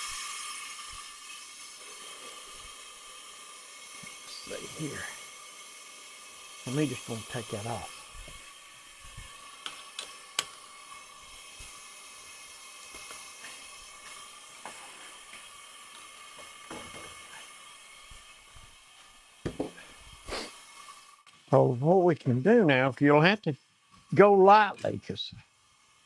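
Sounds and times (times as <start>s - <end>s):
compressed air vacuum hiss: 0.0s - 21.7s
knock: 19.4s - 19.8s.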